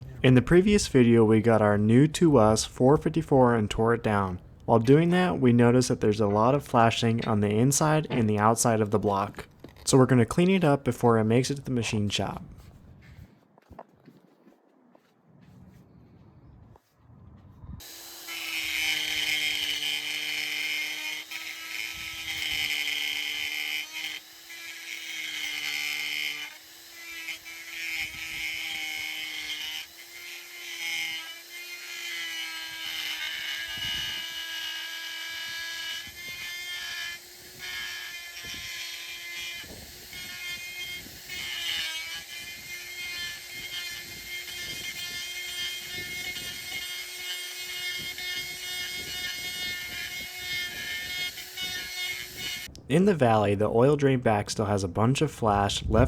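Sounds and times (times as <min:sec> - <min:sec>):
gritty grinding on metal: 0:00.0 - 0:13.8, 0:17.8 - 0:53.4
power grinder whining: 0:17.8 - 0:52.8.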